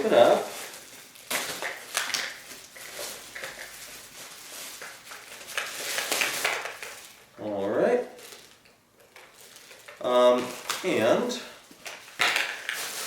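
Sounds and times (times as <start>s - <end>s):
plastic parts clicking and knocking: 11.8s - 12.8s.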